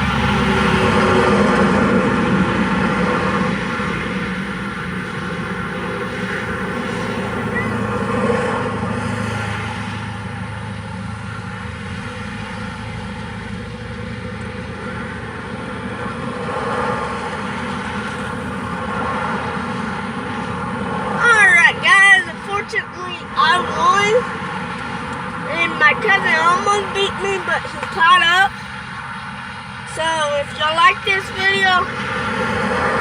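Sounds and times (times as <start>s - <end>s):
rc car motor whine: 2.8s - 8.8s.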